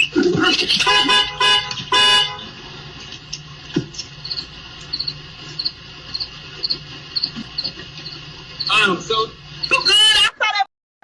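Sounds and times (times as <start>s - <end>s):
loud horn-like honks: 0.8s - 2.6s.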